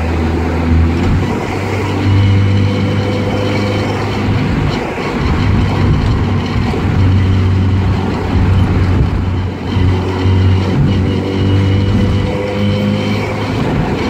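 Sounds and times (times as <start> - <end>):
car engine running: 0.0 - 14.0
tyre and road noise: 0.0 - 14.0.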